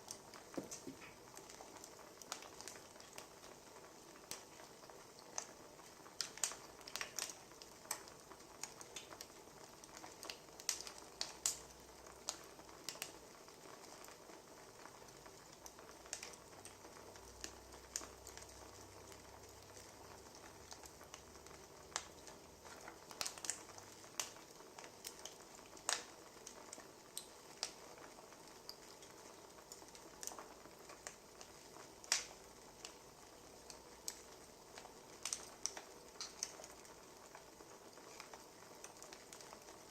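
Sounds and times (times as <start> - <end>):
faint fire hiss: 0.0 - 39.9
firewood popping and snapping: 0.4 - 3.3, 6.2 - 9.3, 9.9 - 13.2, 21.9 - 27.8, 29.7 - 33.0, 33.6 - 37.4.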